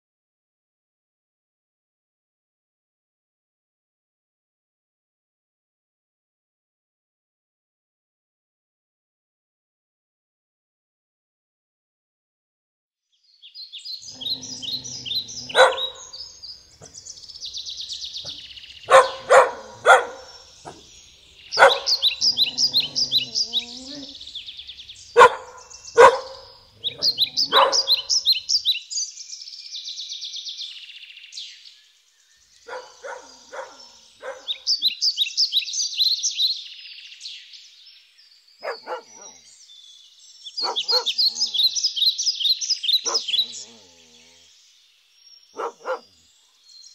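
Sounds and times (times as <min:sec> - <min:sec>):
birds chirping trills: 0:13.3 - 0:46.9
dog barking: 0:14.1 - 0:16.2, 0:18.2 - 0:20.9, 0:21.5 - 0:24.2, 0:25.1 - 0:28.4, 0:32.7 - 0:34.9, 0:38.6 - 0:39.4, 0:40.6 - 0:41.7, 0:43.0 - 0:43.8, 0:45.6 - 0:46.1.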